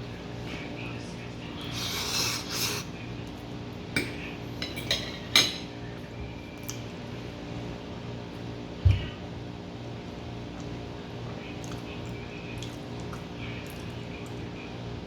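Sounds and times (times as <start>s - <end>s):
fork scraping across a plate: 1.6s - 2.9s
cutlery clinking on a plate: 4.0s - 5.7s.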